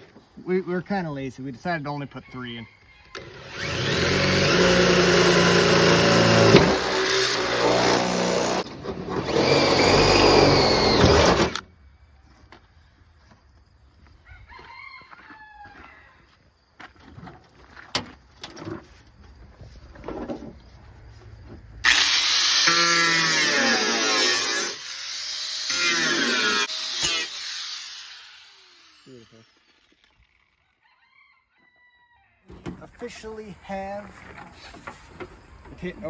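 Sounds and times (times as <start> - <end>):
electric drill whining through metal: 3.1 - 11.6, 21.8 - 30.4.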